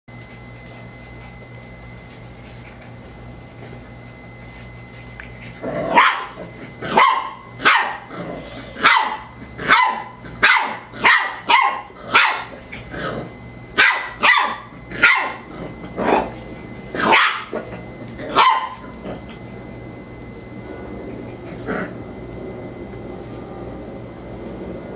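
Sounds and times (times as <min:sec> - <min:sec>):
dog barking: 0:05.9 - 0:08.1, 0:08.8 - 0:12.5, 0:13.8 - 0:15.5, 0:17.0 - 0:17.6, 0:18.3 - 0:18.9.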